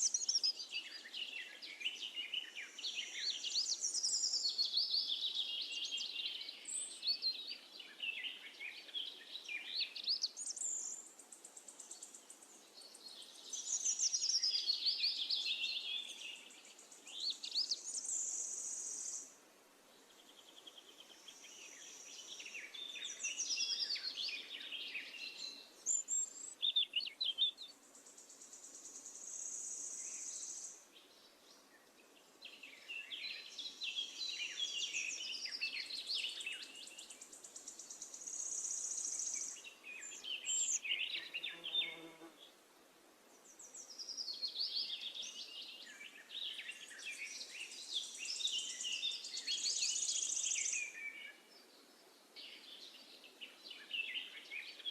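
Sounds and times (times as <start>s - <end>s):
songbirds chirping and trilling: 0.0s - 54.9s.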